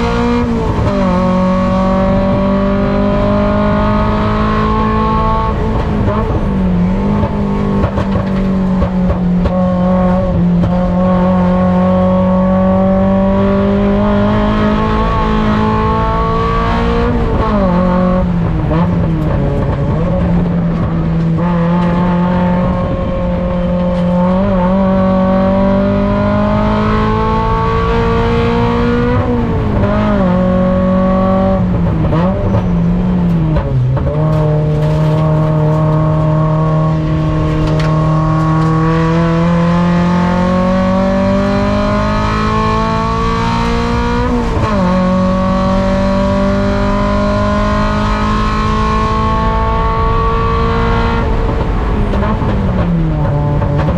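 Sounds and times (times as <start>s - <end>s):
race car engine under load: 0.0s - 53.9s.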